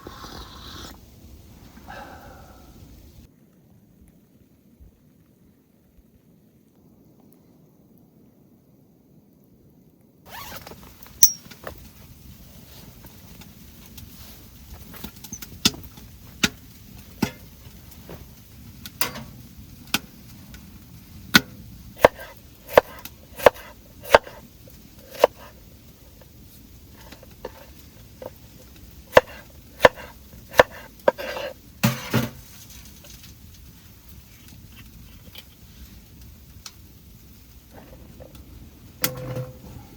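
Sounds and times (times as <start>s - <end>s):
firewood being chopped: 21.3s - 24.4s, 25.0s - 25.6s, 27.0s - 32.5s, 39.0s - 39.7s
wood splintering: 22.0s - 24.4s, 29.1s - 32.1s.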